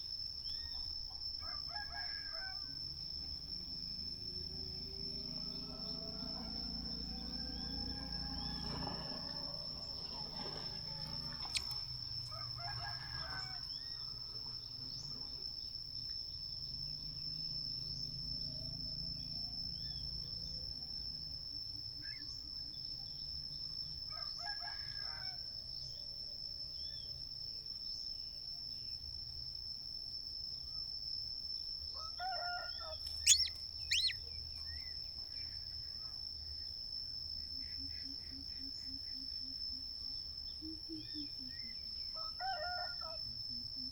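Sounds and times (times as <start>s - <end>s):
high insect drone: 0.0s - 43.9s
rooster crowing: 1.4s - 2.8s, 4.8s - 14.0s, 24.1s - 25.4s, 32.0s - 34.2s, 42.2s - 43.3s
sharp high-pitched bird chirps: 33.1s - 34.2s.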